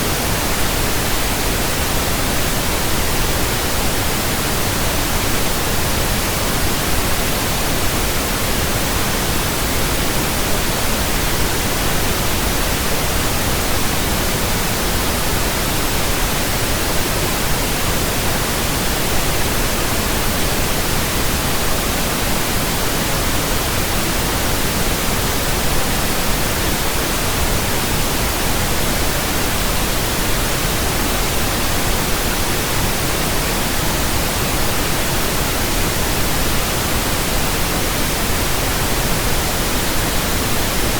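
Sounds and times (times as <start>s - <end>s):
steady pink noise hiss: 0.0s - 40.9s.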